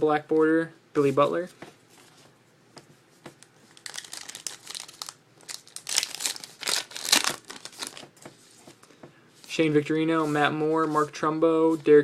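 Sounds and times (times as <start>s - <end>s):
wrapper crinkling and tearing: 3.7s - 8.1s.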